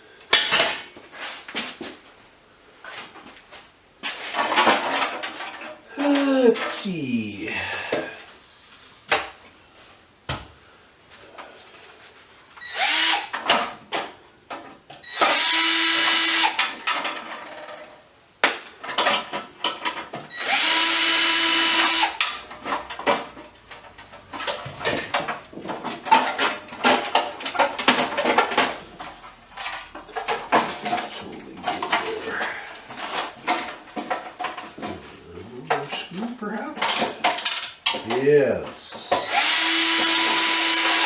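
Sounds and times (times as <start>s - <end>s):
cordless drill whirring: 12.6s - 13.3s, 15.1s - 16.6s, 20.4s - 22.2s, 39.2s - 41.0s.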